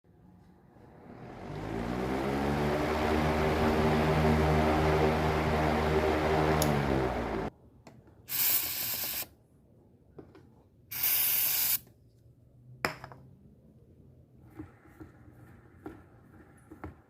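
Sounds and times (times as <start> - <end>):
fan humming: 0.7 - 7.5
aerosol spray can hissing: 8.3 - 9.3, 10.9 - 11.8.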